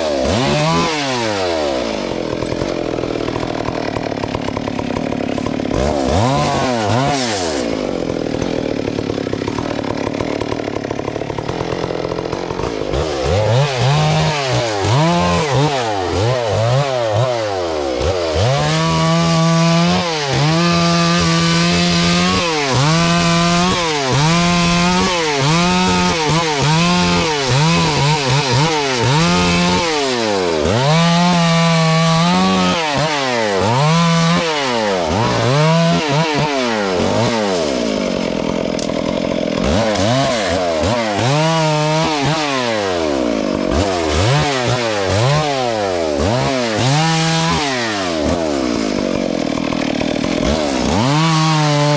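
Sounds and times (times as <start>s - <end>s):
chainsaw engine revving: 0.0s - 51.9s.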